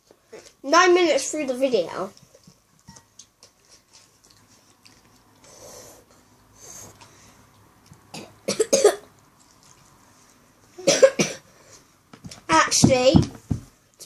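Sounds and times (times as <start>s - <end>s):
child coughing: 8.1s - 9.1s, 10.8s - 11.5s.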